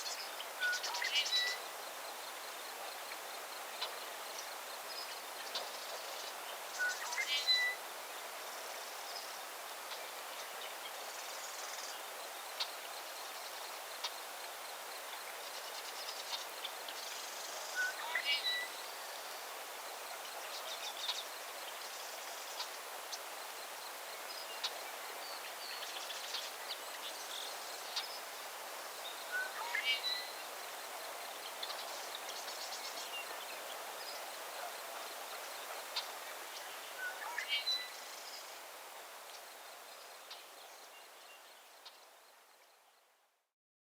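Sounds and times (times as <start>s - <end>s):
songbird song phrase: 0.0s - 43.4s
background hiss: 0.0s - 43.5s.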